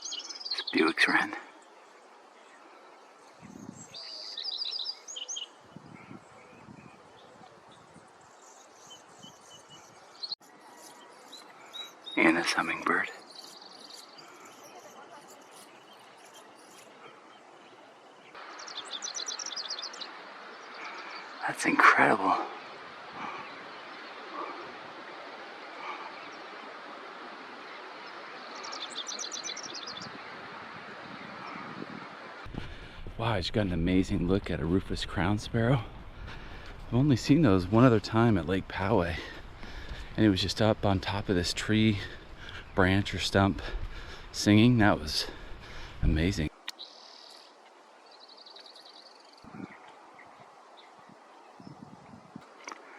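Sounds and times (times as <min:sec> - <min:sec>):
wren singing: 0:00.0 - 0:30.4
steady outdoor hiss: 0:00.0 - 0:52.9.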